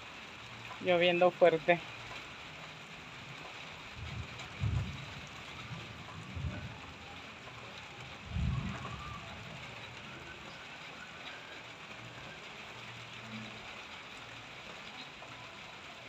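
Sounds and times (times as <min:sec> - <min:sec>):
light rain hissing: 0:00.0 - 0:16.0
low thunder rumble: 0:03.9 - 0:10.5.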